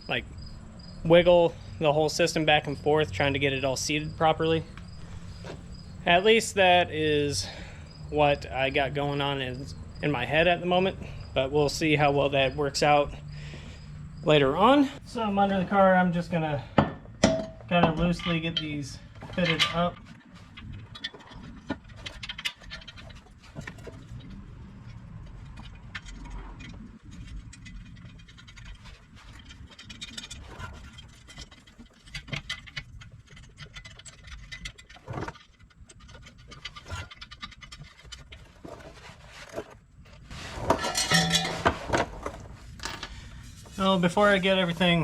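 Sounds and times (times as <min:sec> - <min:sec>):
exhaust pipes scraping and clunking: 0:00.0 - 0:45.0
metal on metal knocks: 0:16.8 - 0:18.7, 0:40.7 - 0:42.0.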